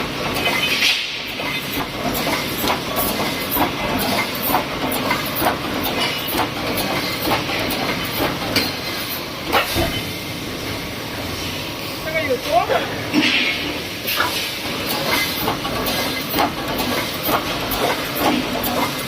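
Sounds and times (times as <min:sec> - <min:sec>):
welding machine clacks: 0:00.0 - 0:09.8, 0:13.4 - 0:19.0
machine hiss: 0:13.2 - 0:19.0.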